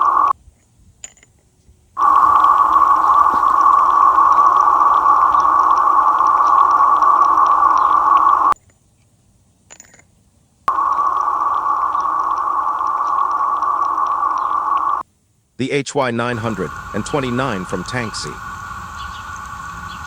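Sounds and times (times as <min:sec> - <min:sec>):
leaking water hiss: 0:00.0 - 0:00.3, 0:02.0 - 0:08.6, 0:10.7 - 0:15.0, 0:16.3 - 0:20.0.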